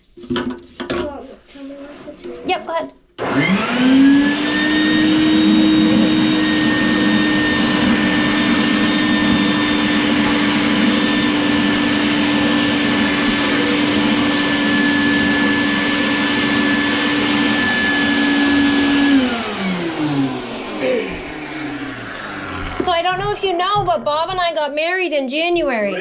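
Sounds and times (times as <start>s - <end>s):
vacuum cleaner motor whining: 3.2s - 24.0s.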